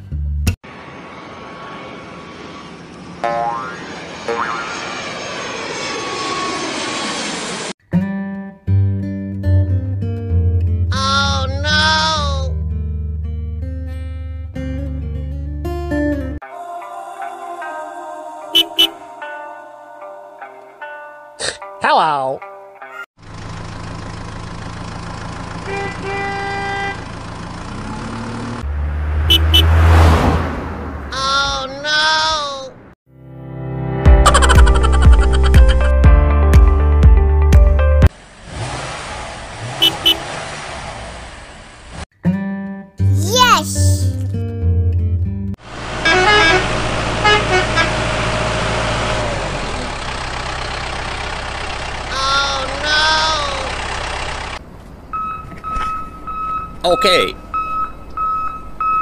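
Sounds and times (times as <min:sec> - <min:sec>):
vehicle horn honking: 0:18.5 - 0:19.1, 0:25.6 - 0:27.1, 0:29.2 - 0:30.1, 0:39.8 - 0:40.3, 0:46.0 - 0:48.1
engine running: 0:23.2 - 0:31.1, 0:45.6 - 0:56.9.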